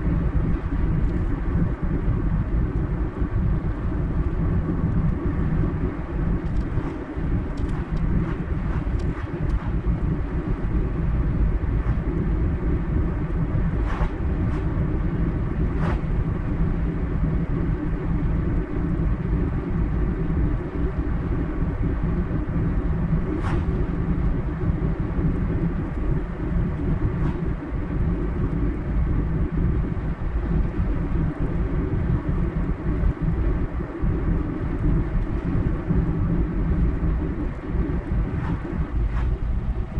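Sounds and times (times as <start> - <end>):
car tyre and engine rumble: 0.0 - 39.9.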